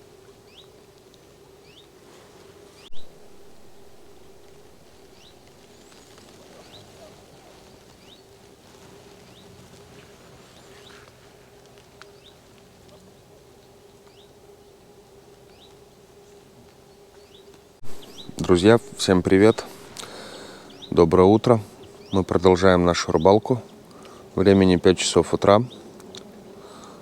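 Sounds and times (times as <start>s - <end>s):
steady low hum: 0.0s - 27.0s
bird chirps: 2.8s - 8.3s, 12.1s - 13.1s, 14.0s - 14.3s, 17.2s - 22.4s.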